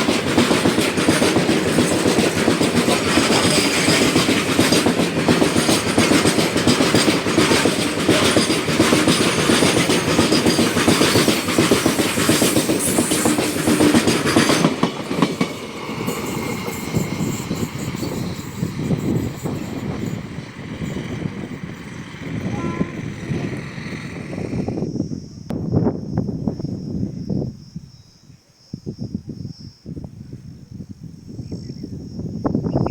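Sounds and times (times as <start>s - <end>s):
train wheels clattering over rails: 0.0s - 24.7s.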